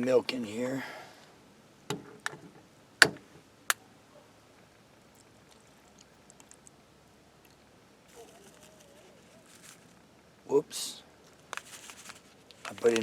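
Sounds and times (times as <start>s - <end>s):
cooking gear clicks and knocks: 12.6s - 13.0s.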